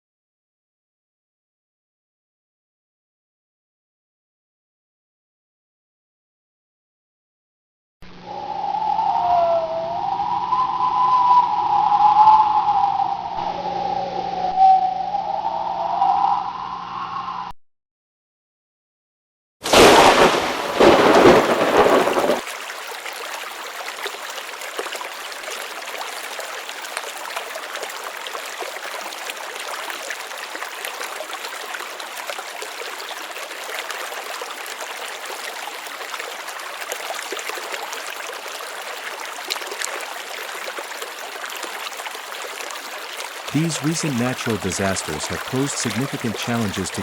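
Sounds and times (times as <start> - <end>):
thunder clap: 19.7 - 22.4
steady rain: 19.7 - 47.0.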